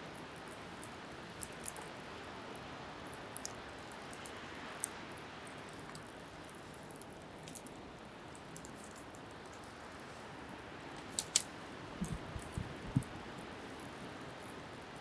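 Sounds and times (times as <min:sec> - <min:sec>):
wind: 0:00.0 - 0:15.0
bonfire crackling and popping: 0:10.9 - 0:15.0.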